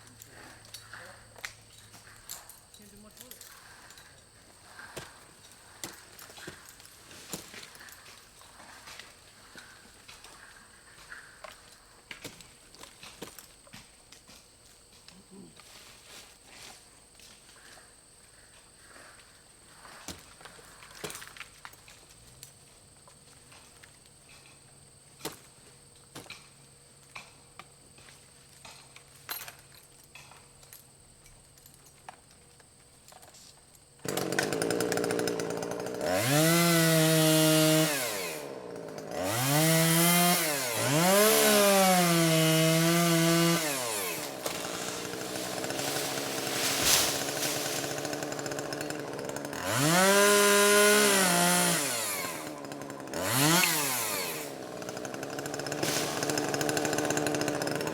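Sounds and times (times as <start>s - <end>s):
chainsaw revving: 34.0s - 57.9s.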